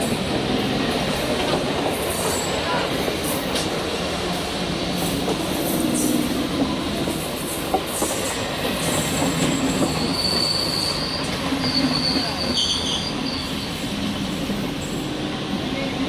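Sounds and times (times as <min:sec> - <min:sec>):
train rumbling on rails: 0:00.0 - 0:16.0
train wheel squeal: 0:07.7 - 0:15.2.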